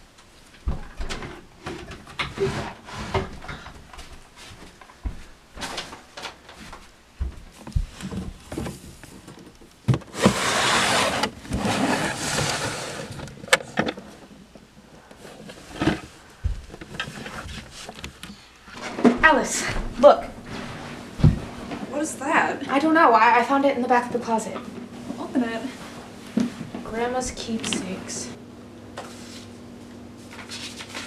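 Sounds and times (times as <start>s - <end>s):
knocks and thuds: 0.6s - 1.2s.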